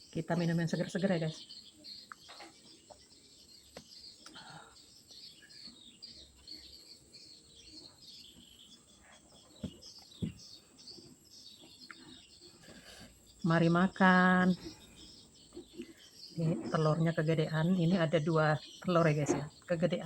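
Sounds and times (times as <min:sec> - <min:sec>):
birds chirping: 0:00.0 - 0:20.0
soft knocks: 0:09.6 - 0:10.4.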